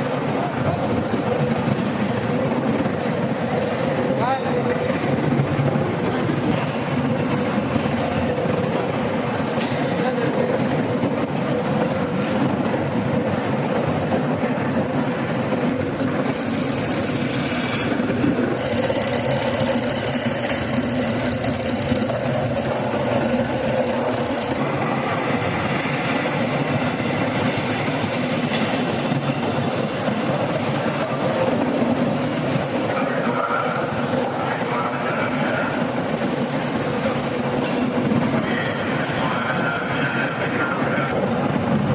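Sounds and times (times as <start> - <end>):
industrial machinery hum: 11.6 - 41.9.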